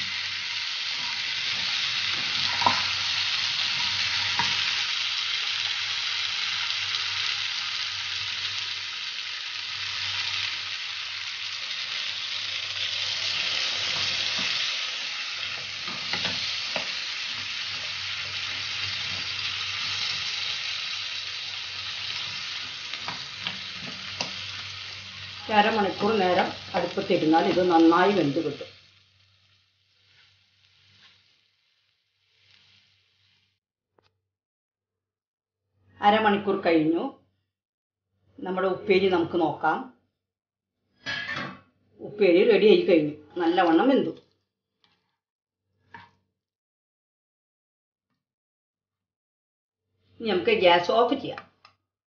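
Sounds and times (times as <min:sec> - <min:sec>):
potatoes sizzling in oil: 0:00.0 - 0:33.6
spatula scraping pan: 0:00.5 - 0:04.7, 0:13.2 - 0:20.8, 0:22.0 - 0:28.2.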